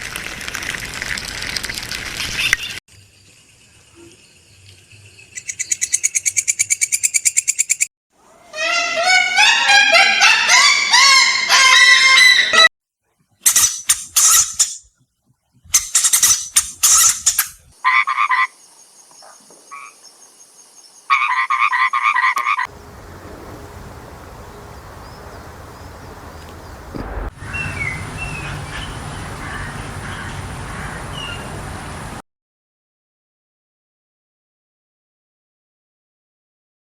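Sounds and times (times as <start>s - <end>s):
rapid chirping calls: 5.3s - 7.9s, 16.0s - 32.2s
pulsed croaking calls: 21.1s - 32.2s
outdoor hiss: 22.7s - 32.2s.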